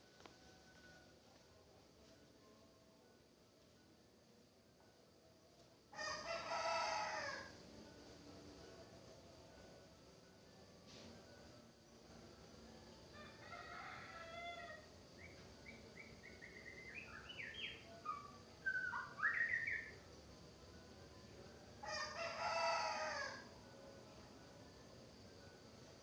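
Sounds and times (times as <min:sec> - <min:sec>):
rooster crowing: 0:05.9 - 0:07.6, 0:13.1 - 0:14.9, 0:21.8 - 0:23.5
songbird singing whistles: 0:15.2 - 0:20.0.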